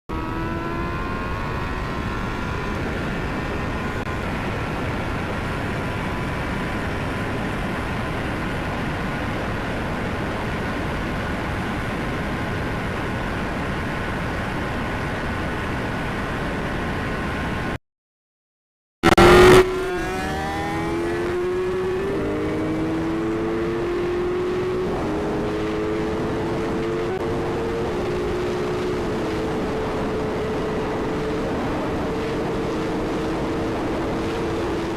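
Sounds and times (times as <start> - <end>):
motorcycle engine at high speed: 0.1 - 17.8, 19.0 - 34.9
wind noise on microphone: 19.2 - 34.9.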